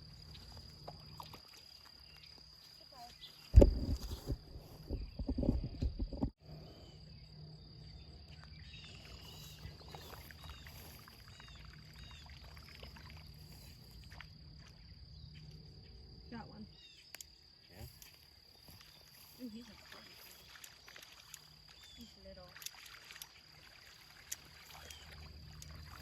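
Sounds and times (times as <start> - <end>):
high insect drone: 0.0 - 5.5, 6.4 - 26.0.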